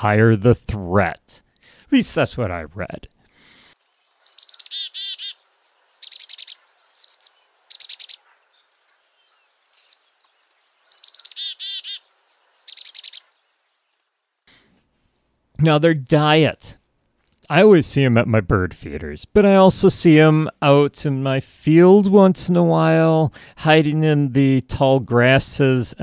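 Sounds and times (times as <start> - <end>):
chickadee calling: 3.4 - 13.4.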